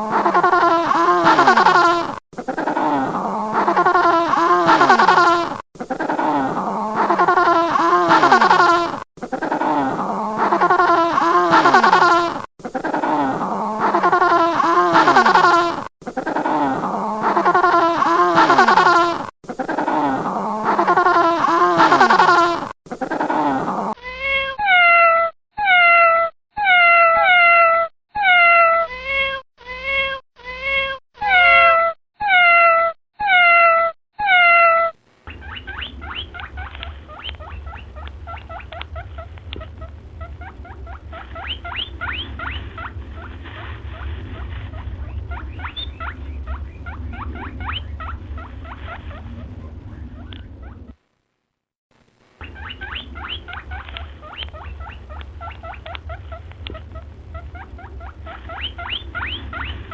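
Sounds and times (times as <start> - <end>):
cat meowing: 24.1 - 35.0
animal chirping high-pitched: 31.2 - 43.0, 43.9 - 51.0, 52.4 - 59.9
low hum: 35.0 - 51.4, 52.0 - 59.9.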